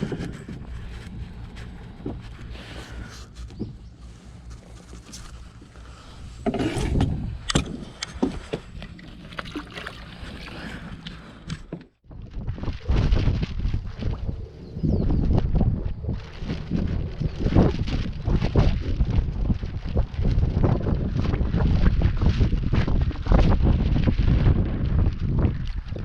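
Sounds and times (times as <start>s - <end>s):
steady low rumble: 0.0s - 9.1s, 12.0s - 26.0s
knocks and clicks of gear: 6.5s - 8.6s.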